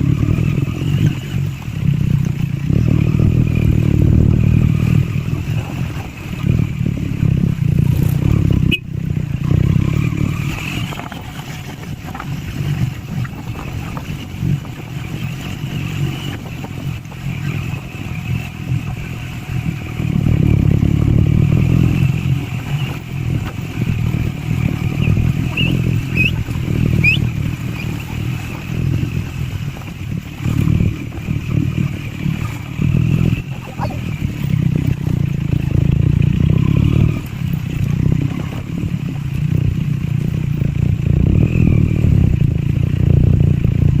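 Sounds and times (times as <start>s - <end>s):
motorcycle engine under way: 0.0s - 44.0s
clatter: 9.4s - 33.9s.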